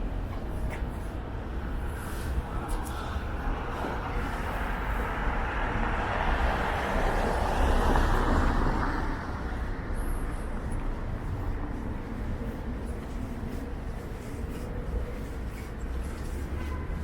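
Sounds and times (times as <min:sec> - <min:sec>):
car passing: 0:03.7 - 0:10.1.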